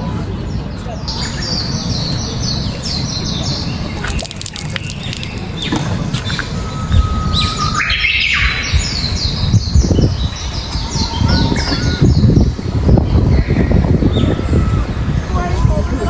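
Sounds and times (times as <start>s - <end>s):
birds chirping: 0.0s - 16.0s
low rumbling noise: 0.0s - 16.0s
whistle-like bird notes: 4.8s - 12.6s.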